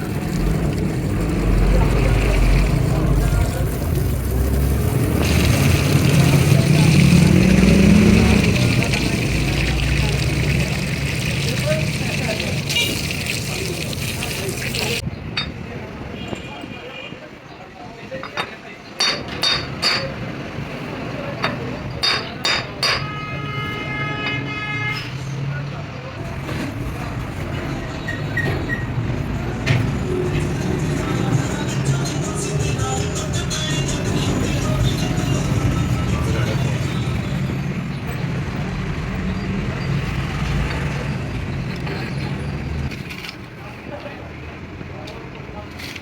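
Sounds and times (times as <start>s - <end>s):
hammer striking metal: 19.0s - 20.2s, 21.4s - 23.2s.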